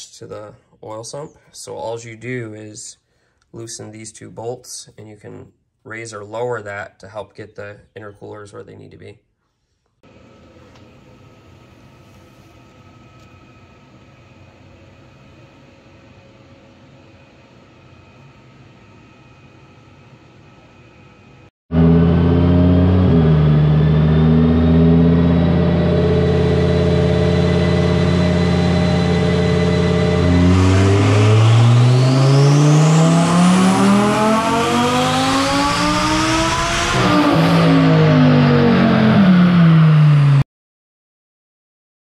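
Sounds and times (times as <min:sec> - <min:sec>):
car engine revving: 0:21.7 - 0:40.4.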